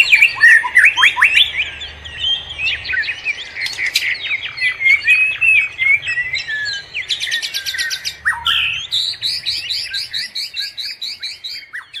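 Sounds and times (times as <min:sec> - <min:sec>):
bird repeating high chirp: 0:00.0 - 0:12.0
birds singing and chirping: 0:00.0 - 0:12.0.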